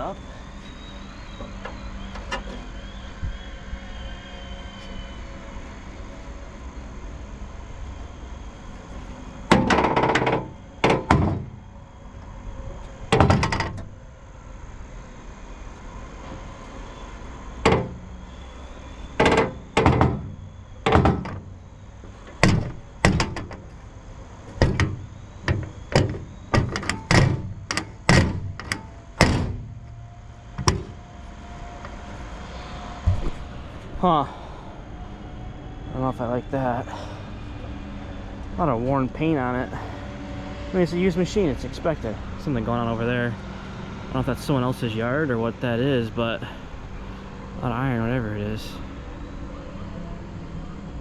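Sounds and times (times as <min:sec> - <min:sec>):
steady background hum: 0:00.0 - 0:51.0
hollow metal thunks: 0:09.5 - 0:11.7, 0:13.1 - 0:14.0, 0:17.6 - 0:18.2, 0:19.1 - 0:21.6, 0:22.3 - 0:23.8, 0:24.4 - 0:31.1, 0:33.0 - 0:34.0.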